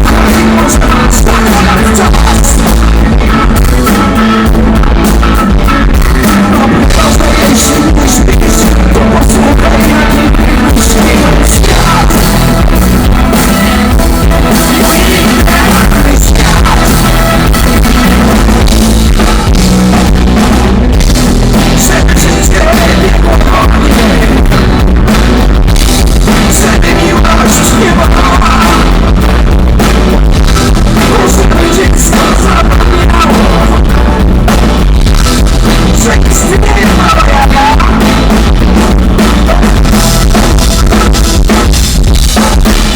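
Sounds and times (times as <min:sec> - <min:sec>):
person singing: 0:00.0 - 0:25.4, 0:26.0 - 0:34.7, 0:35.5 - 0:41.0
distorted live rock band: 0:00.0 - 0:42.9.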